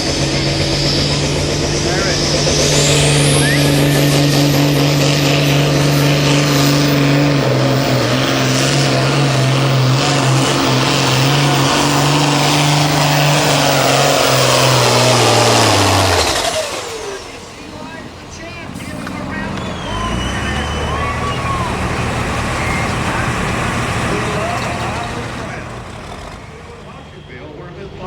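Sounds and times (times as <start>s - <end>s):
diesel tractor engine at full throttle: 0.0s - 28.0s
turbo whistle: 0.1s - 17.4s, 18.3s - 23.3s.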